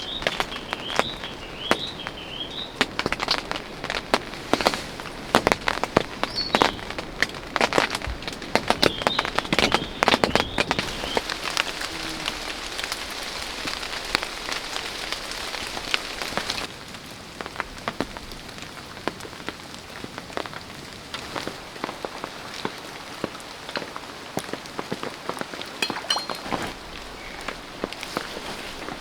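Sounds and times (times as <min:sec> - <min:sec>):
rain hissing: 0:00.0 - 0:29.0
single drops tapping: 0:25.8 - 0:26.7.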